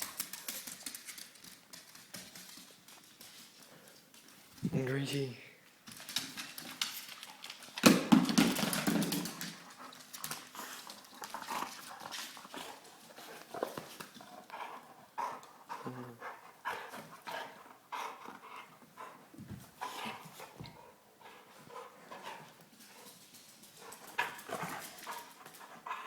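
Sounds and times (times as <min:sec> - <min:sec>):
dog making small sounds: 0:15.2 - 0:16.9.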